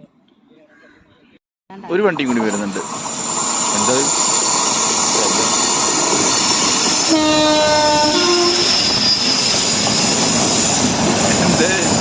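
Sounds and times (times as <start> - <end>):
train rushing past: 1.9 - 12.0
locomotive horn: 7.0 - 8.8.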